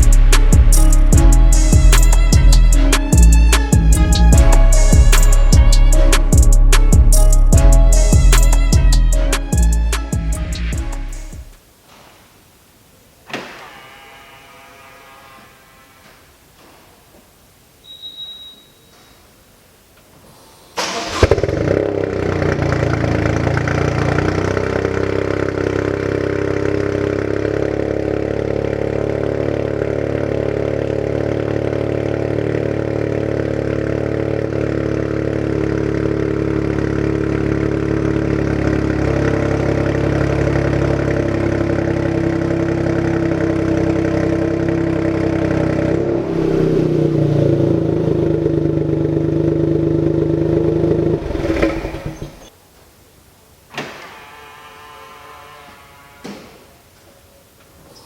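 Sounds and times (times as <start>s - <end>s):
car engine starting and idling: 20.8s - 52.5s.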